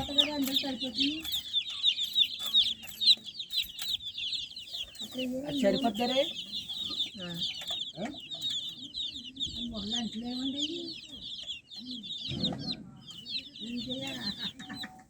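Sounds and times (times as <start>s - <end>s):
baby chicks peeping: 0.0s - 15.0s.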